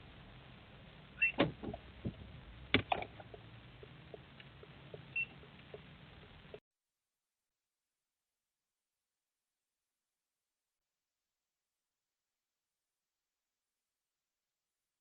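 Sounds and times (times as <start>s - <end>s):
faint steady hum: 0.0s - 6.6s
clicks and knocks in car cabin: 1.3s - 3.4s.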